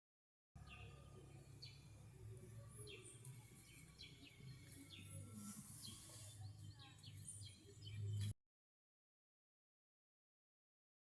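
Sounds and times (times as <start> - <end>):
faint bird chirps: 0.6 - 8.4.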